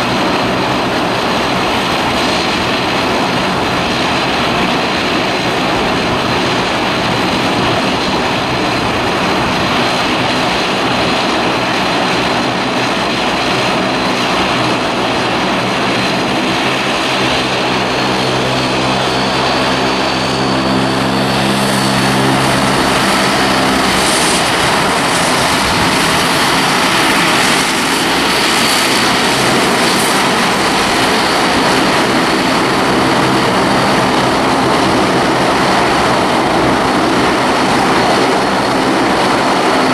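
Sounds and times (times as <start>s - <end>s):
aircraft engines running: 0.0s - 39.9s
low droning hum: 16.1s - 36.1s.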